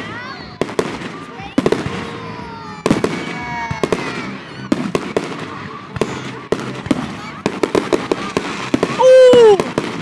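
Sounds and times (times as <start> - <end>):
fireworks bangs and cracks: 0.0 - 10.0.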